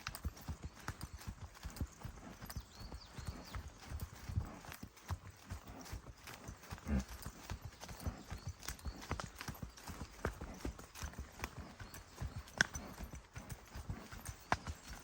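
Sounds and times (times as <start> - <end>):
footsteps on forest track: 3.1 - 15.0.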